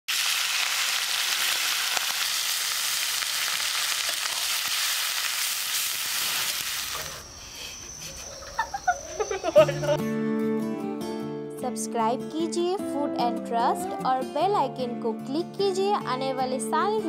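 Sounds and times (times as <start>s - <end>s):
paste sizzling in hot oil: 0.1s - 7.3s
woman laughing: 7.9s - 10.1s.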